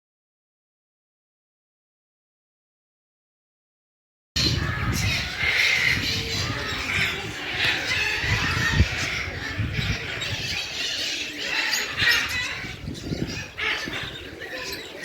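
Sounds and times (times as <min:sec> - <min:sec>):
animals squawking: 0:04.4 - 0:15.0.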